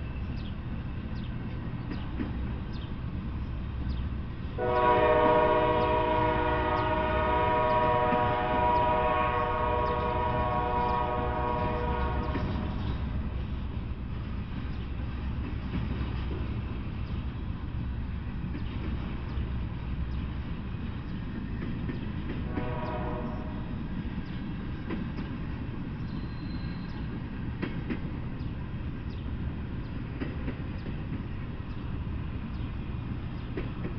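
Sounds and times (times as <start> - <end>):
freight train rolling rumble: 0.0 - 33.9
locomotive horn blast: 4.6 - 13.1, 22.4 - 23.7.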